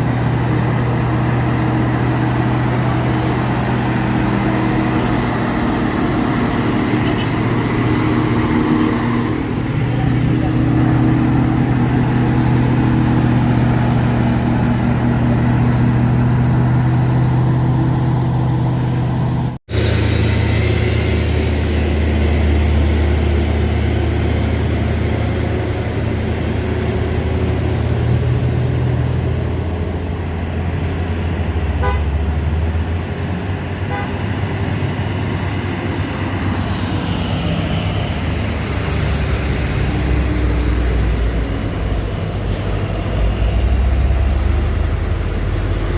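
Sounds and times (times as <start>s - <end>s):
diesel truck engine droning: 0.0s - 45.9s
vehicle horn sounding: 31.8s - 32.2s, 33.9s - 34.2s.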